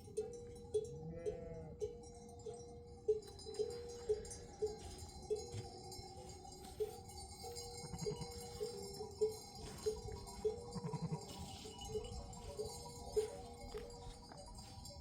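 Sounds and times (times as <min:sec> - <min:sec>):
metal livestock bell clanking: 0:00.0 - 0:15.0
faint sheep bleat: 0:01.0 - 0:01.8, 0:10.7 - 0:11.5.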